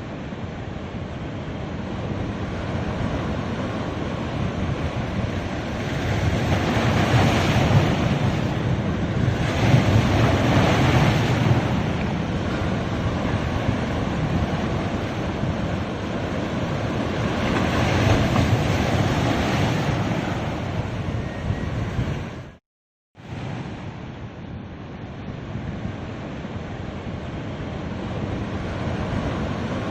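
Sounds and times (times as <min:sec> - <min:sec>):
sea waves washing onto beach: 0:01.5 - 0:20.7.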